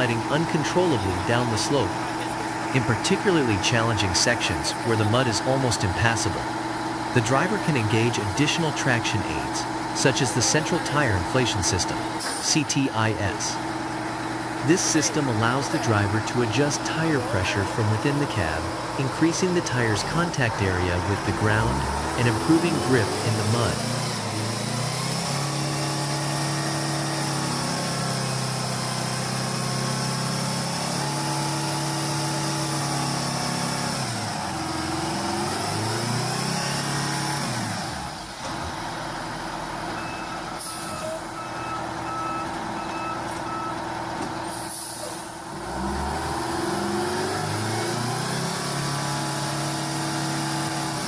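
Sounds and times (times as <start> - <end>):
diesel truck engine under load: 0.0 - 51.0
short air hisses: 44.5 - 45.3.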